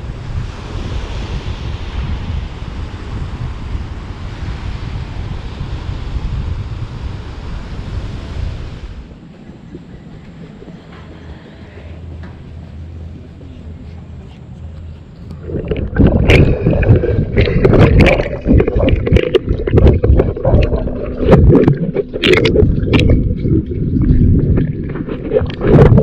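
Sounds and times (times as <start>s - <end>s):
muffled underwater churning and bubbling: 0.0s - 14.2s, 15.1s - 26.0s
underwater clicks and knocks: 15.2s - 26.0s.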